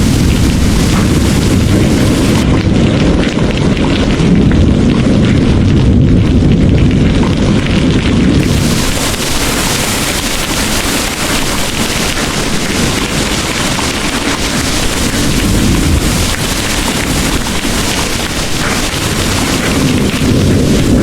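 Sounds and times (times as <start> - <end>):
heavy rain pouring: 0.0 - 21.0
rolling thunder rumble: 0.0 - 21.0.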